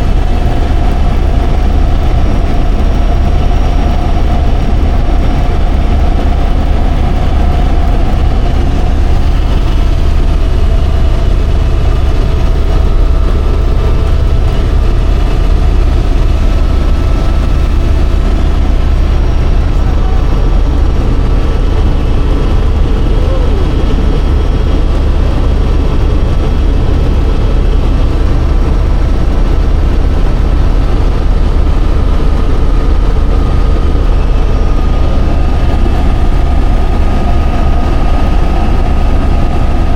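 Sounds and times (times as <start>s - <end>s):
faint steady whine: 0.0s - 39.9s
helicopter rumble: 0.0s - 39.9s.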